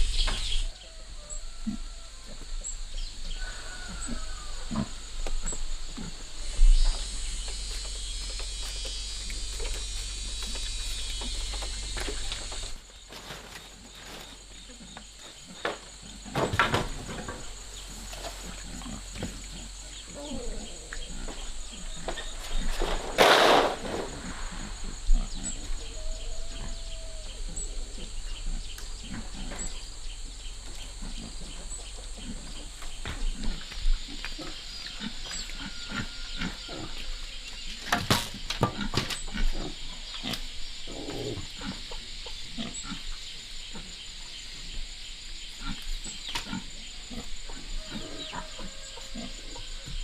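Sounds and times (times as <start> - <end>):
pigs grunting: 3.7 - 7.4, 14.5 - 22.9, 24.1 - 38.0, 38.6 - 44.0, 45.6 - 50.0.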